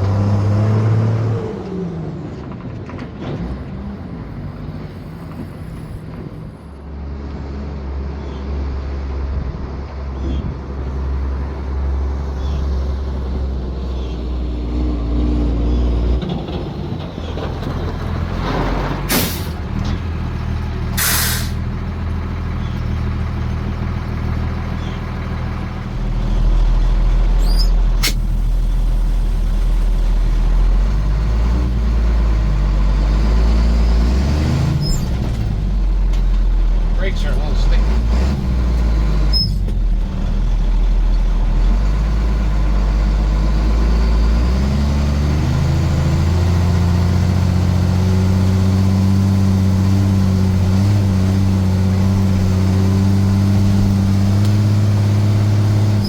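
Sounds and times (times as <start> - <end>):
diesel truck engine running: 0.0 - 56.0
air brake hisses: 19.1 - 19.6, 21.0 - 21.6.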